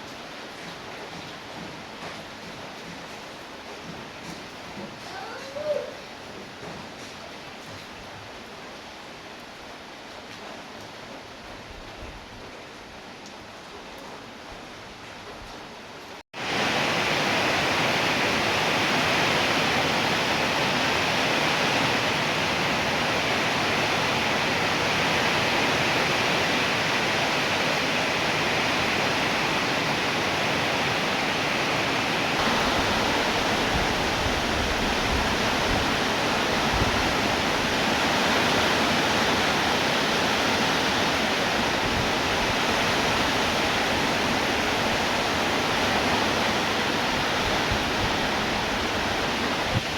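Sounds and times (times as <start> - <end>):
rain falling: 0.0 - 49.9.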